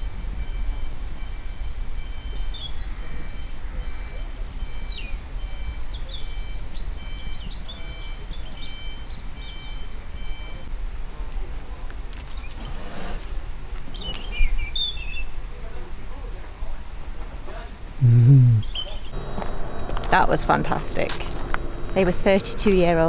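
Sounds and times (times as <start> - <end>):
small birds chirping: 1.6 - 10.7, 12.2 - 15.4, 18.0 - 20.1
low outdoor rumble: 15.3 - 23.0.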